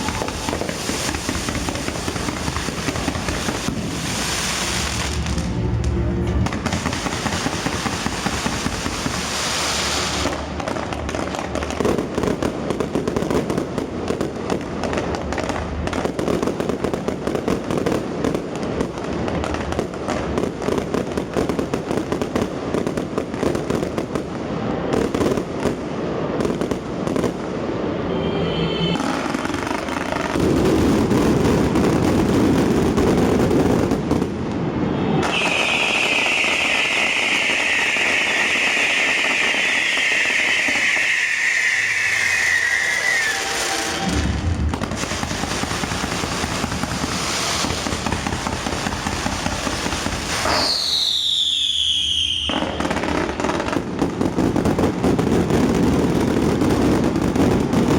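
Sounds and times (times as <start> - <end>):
fireworks crackling and banging: 0.0 - 57.9.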